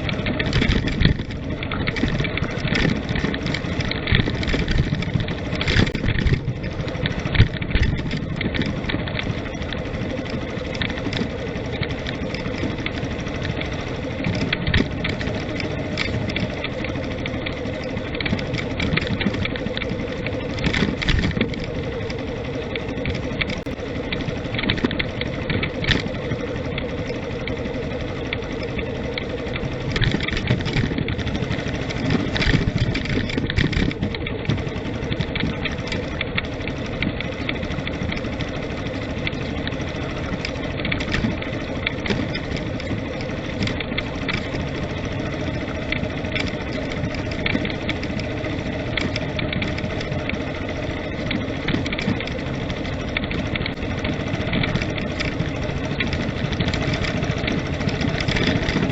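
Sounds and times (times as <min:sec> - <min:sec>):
road noise: 0:00.0 - 0:58.9
vehicle engine running: 0:00.0 - 0:58.9
knocks and rattles from the ride: 0:28.2 - 0:58.9.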